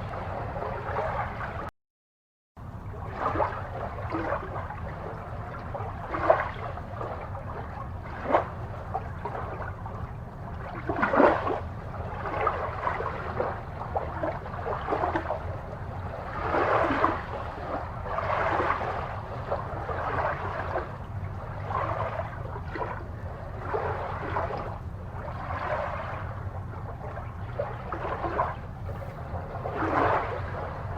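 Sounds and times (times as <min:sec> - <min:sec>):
aquarium water bubbling: 0:00.0 - 0:01.7, 0:02.6 - 0:30.9
steady low hum: 0:00.0 - 0:01.7, 0:02.6 - 0:30.9.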